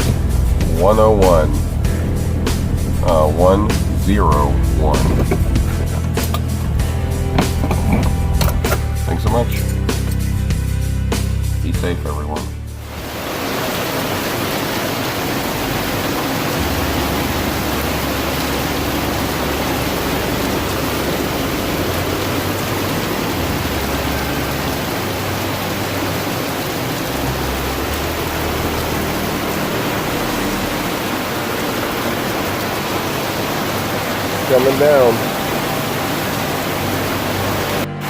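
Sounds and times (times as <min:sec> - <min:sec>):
wind rumbling on microphone: 0:00.0 - 0:08.7
heavy rain hissing: 0:00.0 - 0:38.0.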